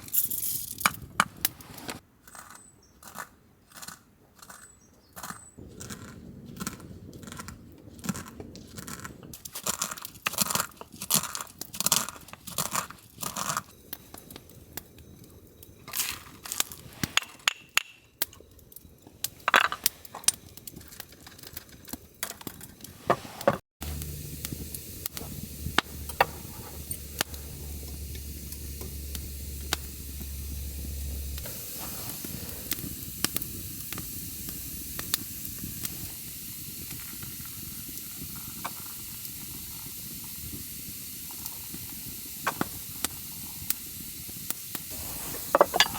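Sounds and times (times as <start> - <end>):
campfire crackling: 5.6 - 45.9
food sizzling: 8.1 - 17.9, 18.5 - 45.9
handling clatter: 45.3 - 45.9.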